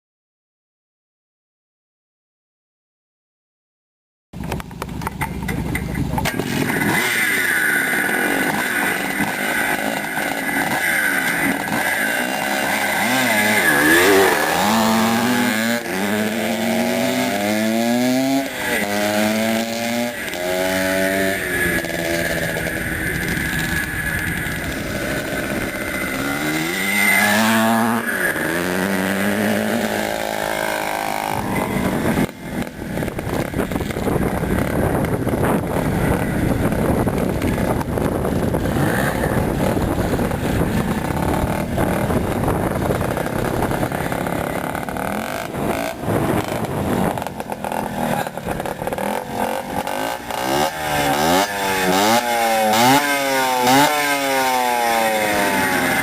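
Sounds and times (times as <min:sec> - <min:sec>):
motocross motorcycle engines revving: 0:04.4 - 0:56.0.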